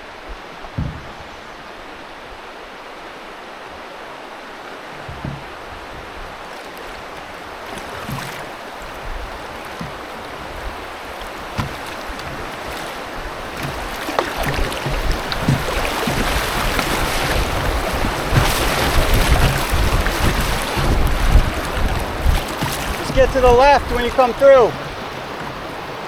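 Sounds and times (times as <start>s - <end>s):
river water rushing: 0.0s - 26.0s
wind rumbling on microphone: 4.9s - 26.0s
short knocks: 11.4s - 12.9s, 13.5s - 25.8s.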